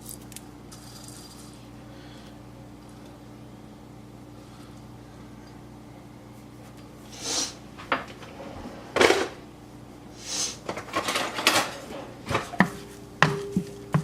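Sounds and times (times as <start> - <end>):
utensil tapping a pan: 12.6 - 14.0.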